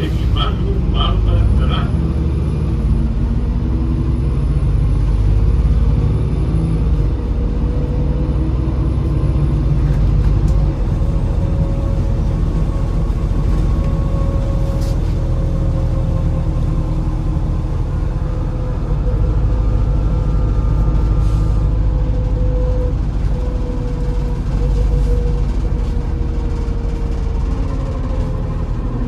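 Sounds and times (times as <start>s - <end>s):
constant whine: 0.0s - 14.6s
bus engine and road rumble: 0.0s - 29.0s.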